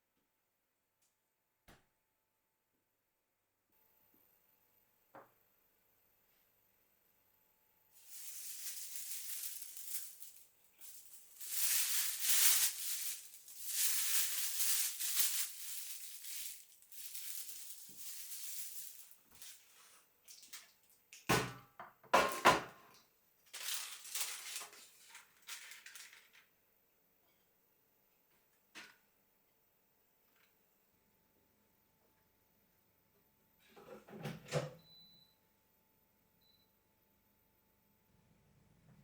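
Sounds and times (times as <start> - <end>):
crackling crunching rustles: 8.0 - 20.6, 23.5 - 26.4.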